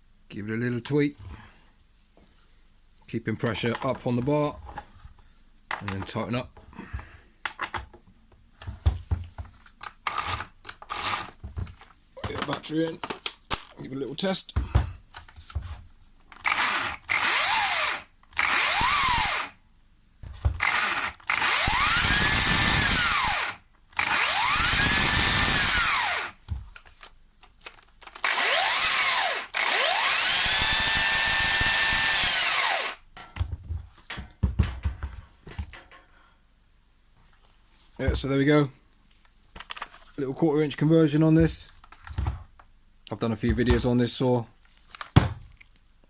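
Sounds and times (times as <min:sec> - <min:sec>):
chainsaw motor whine: 0:16.5 - 0:19.5, 0:20.6 - 0:26.4, 0:28.2 - 0:33.0.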